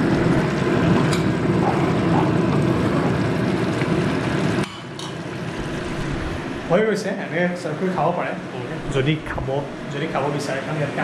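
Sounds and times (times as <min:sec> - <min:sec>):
heavy rain pouring: 0:00.0 - 0:04.6, 0:05.2 - 0:06.9.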